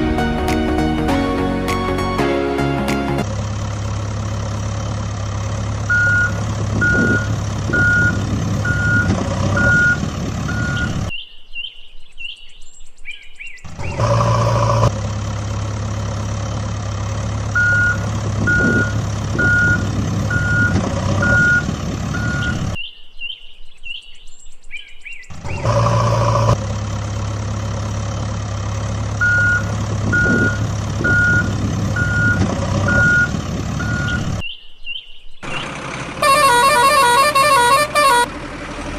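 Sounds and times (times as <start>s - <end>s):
heavy truck engine running: 0.0s - 11.1s, 13.7s - 22.8s, 25.3s - 34.4s, 35.4s - 38.9s
reversing alarm beeping: 5.9s - 11.0s, 17.6s - 22.7s, 29.2s - 34.4s, 36.2s - 38.3s.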